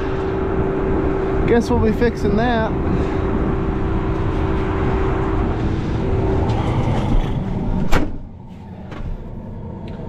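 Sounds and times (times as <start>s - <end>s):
farm machinery engine running: 0.0s - 10.0s.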